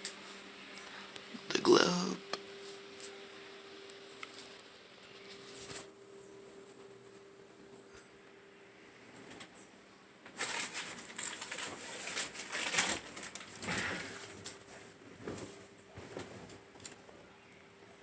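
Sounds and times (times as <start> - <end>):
faint steady hum: 0.0 - 18.0
handling noise rustling and scraping: 4.2 - 6.0, 10.3 - 17.0.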